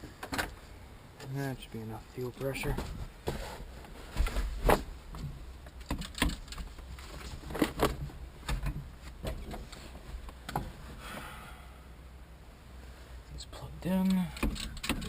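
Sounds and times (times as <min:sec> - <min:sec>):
tools and parts clicking: 0:14.0 - 0:15.0.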